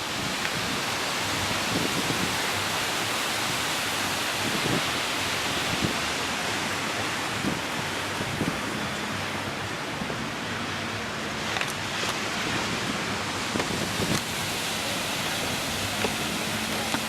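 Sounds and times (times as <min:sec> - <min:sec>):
ocean surf: 0:00.0 - 0:17.0
wind on the beach: 0:00.0 - 0:17.0.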